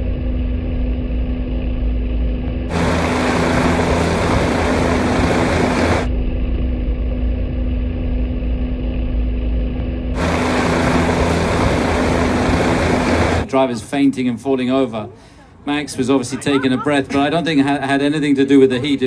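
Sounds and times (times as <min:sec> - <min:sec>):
helicopter engine and rotor: 0:02.7 - 0:06.1, 0:10.2 - 0:13.5
loud rushing noise: 0:02.7 - 0:06.1, 0:10.2 - 0:13.5.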